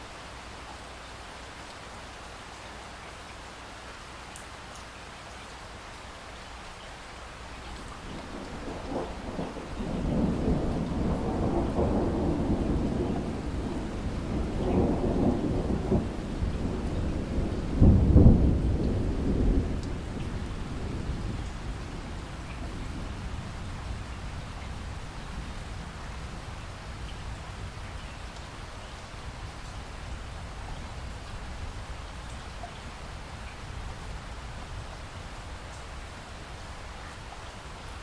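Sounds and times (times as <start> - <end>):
steady rain: 0.0 - 38.0
thunder rumbling: 7.8 - 27.9.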